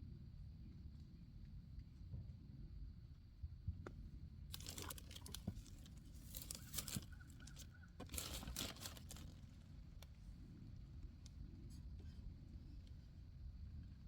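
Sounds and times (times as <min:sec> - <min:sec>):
low steady rumble: 0:00.0 - 0:14.0
crinkling and rustling: 0:04.5 - 0:09.6.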